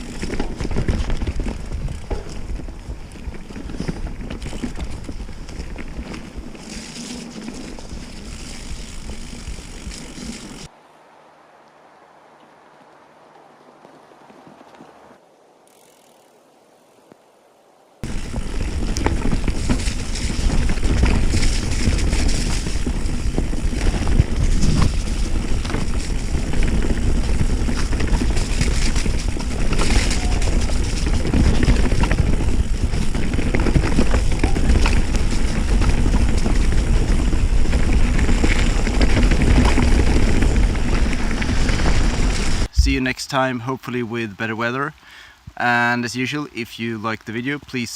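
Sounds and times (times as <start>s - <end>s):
wind buffeting microphone: 0.0s - 6.8s, 18.0s - 43.0s
bike tyre rumble: 0.0s - 43.0s.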